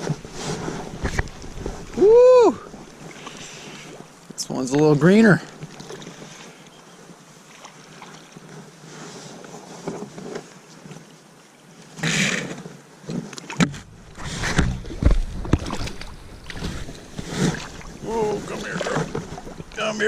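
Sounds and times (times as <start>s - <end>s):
water splashes: 0.0s - 8.8s, 13.2s - 20.0s
faint creek water: 0.0s - 20.0s
knocks and low thumps: 13.6s - 18.1s.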